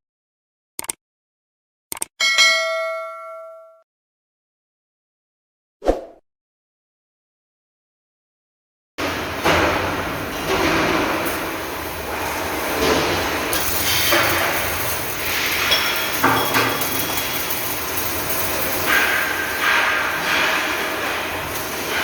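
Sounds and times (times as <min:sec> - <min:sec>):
steady noisy workshop din: 0:09.0 - 0:22.0
steel knocking and clanking: 0:12.1 - 0:22.0.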